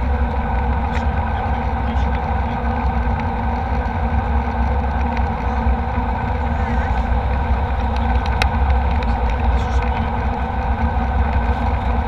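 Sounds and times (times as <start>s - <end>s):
jet engine cabin drone: 0.0s - 12.0s.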